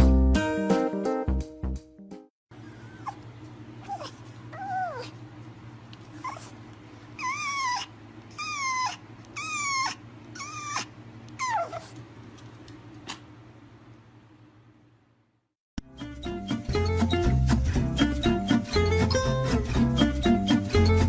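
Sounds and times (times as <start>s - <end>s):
puppy whining: 2.6s - 5.3s, 6.0s - 12.0s.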